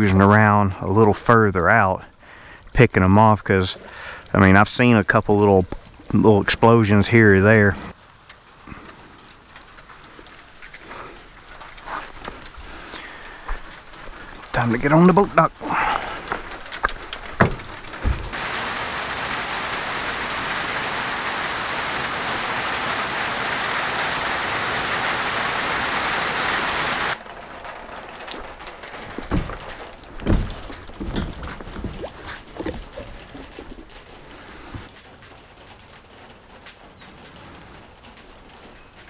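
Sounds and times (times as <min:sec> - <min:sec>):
rain hissing on water: 0:00.0 - 0:39.0
knocks and thumps: 0:15.8 - 0:18.4, 0:28.3 - 0:36.4.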